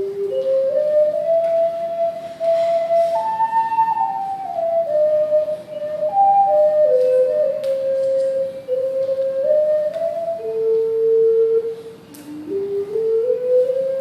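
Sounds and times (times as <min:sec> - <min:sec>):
low ocarina melody: 0:00.0 - 0:14.0.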